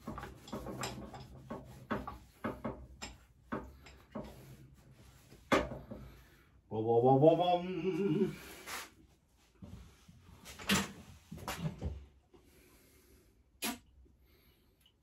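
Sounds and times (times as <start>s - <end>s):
tools clicking and knocking: 0.0s - 4.4s.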